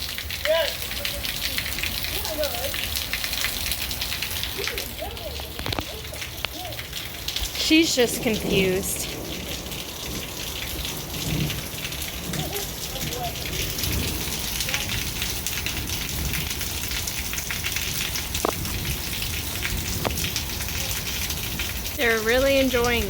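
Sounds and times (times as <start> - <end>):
heavy rain on hard surfaces: 0.0 - 23.0.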